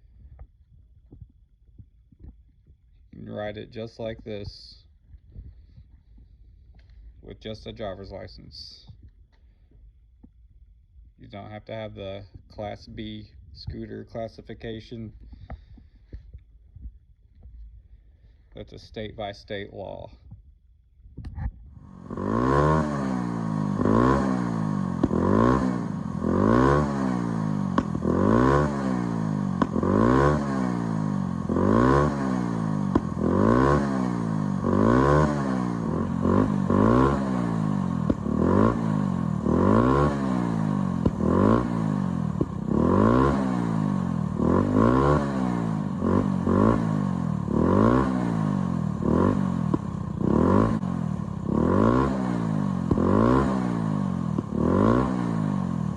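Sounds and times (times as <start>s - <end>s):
scooter engine revving: 21.8s - 55.9s.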